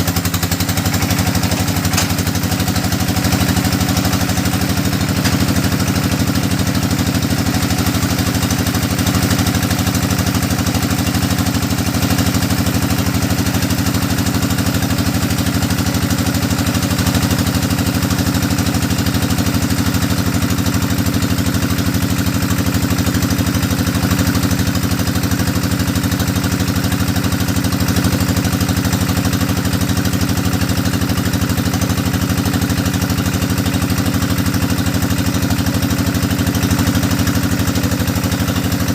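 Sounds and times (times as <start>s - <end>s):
drilling rig engine running: 0.0s - 11.5s.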